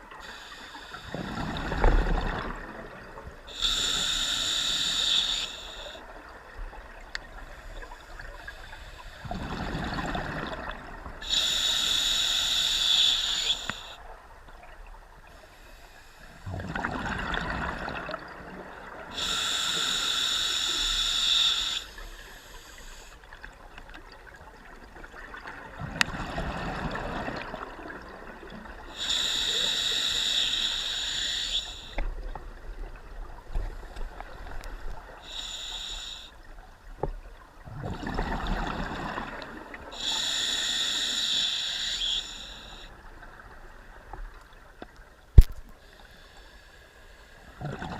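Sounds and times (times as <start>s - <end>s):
hissing inhale through regulator: 0.1s - 6.1s, 7.4s - 10.2s, 11.2s - 14.0s, 15.4s - 16.5s, 19.0s - 23.3s, 28.6s - 32.2s, 33.6s - 36.5s, 38.1s - 43.0s, 45.8s - 47.6s
exhaled bubbles gurgling: 1.0s - 3.6s, 9.2s - 11.6s, 16.4s - 19.3s, 24.1s - 30.3s, 37.6s - 40.2s, 47.6s - 47.9s.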